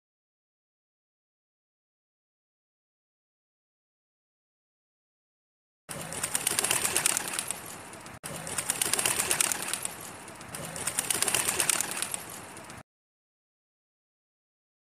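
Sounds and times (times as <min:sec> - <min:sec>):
pigeon cooing: 0:05.9 - 0:12.8.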